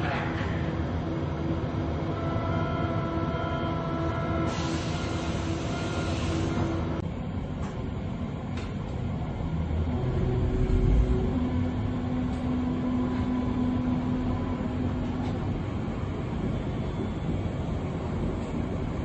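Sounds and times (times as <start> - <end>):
train motor hum with whine: 0.0 - 19.0
hiss: 4.5 - 6.8.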